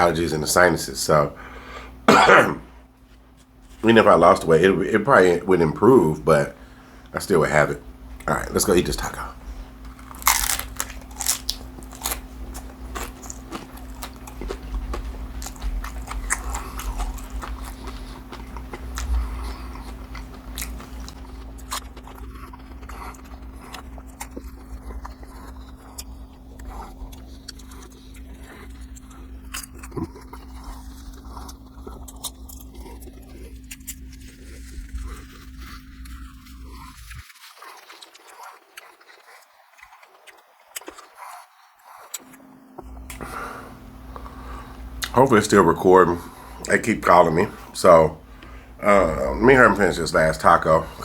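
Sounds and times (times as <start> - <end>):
steady low hum: 0.0 - 37.4, 39.6 - 51.0
crunching and chewing food: 0.0 - 51.0.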